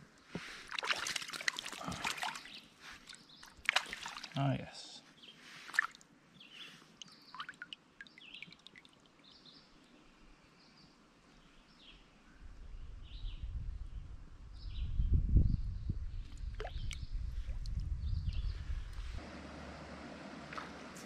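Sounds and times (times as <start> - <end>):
water splash: 0.4 - 2.5, 3.6 - 4.4, 19.2 - 21.0
small birds chirping: 1.8 - 19.2.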